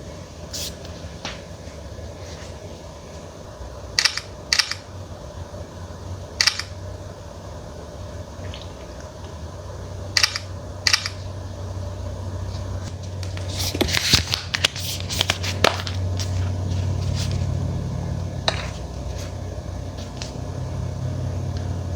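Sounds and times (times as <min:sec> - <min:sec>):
steady low hum: 0:00.0 - 0:21.9
packaging rustling: 0:13.0 - 0:17.6.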